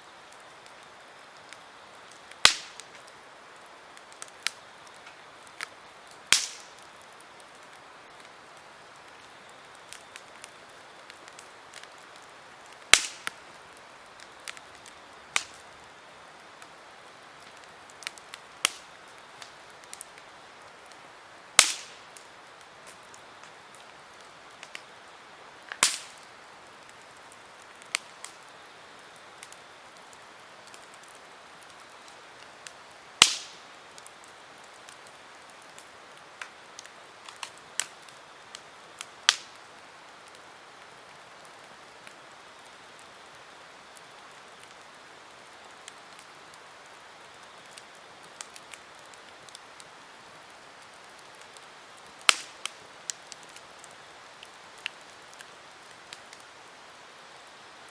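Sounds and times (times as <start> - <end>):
campfire crackling: 0.0 - 57.9
sharp loud fire pops: 2.4 - 2.8, 6.3 - 6.7, 12.9 - 13.3, 21.6 - 22.0, 25.7 - 26.2, 33.2 - 33.6.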